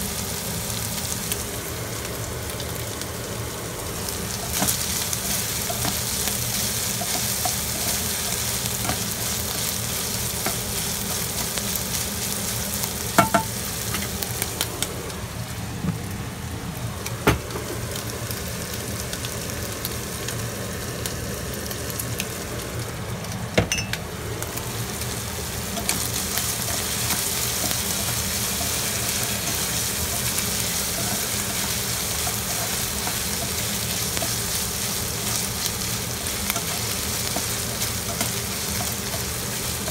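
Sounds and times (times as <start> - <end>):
meat sizzling in a pan: 0.0 - 39.9
spatula knocking against pan: 13.2 - 13.5.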